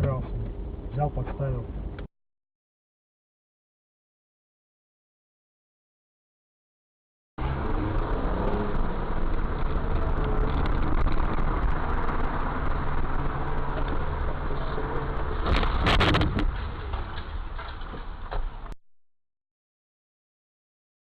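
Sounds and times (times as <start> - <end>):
car engine and road rumble: 0.0 - 2.1, 7.4 - 18.8.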